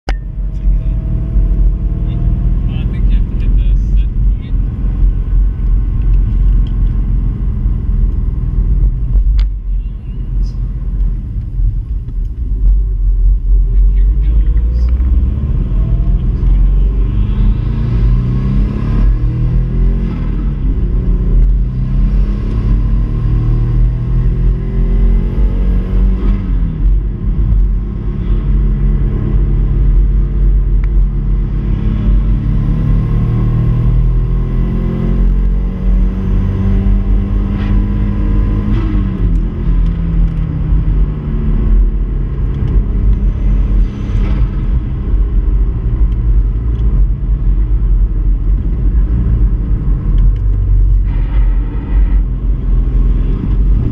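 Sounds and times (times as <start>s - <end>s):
road and wind rumble: 0.0s - 53.9s
car engine accelerating hard: 10.4s - 53.9s.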